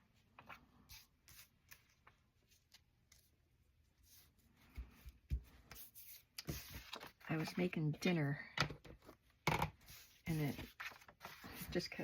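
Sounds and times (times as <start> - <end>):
paper rustling: 0.2 - 3.4, 4.0 - 7.7, 9.8 - 12.0.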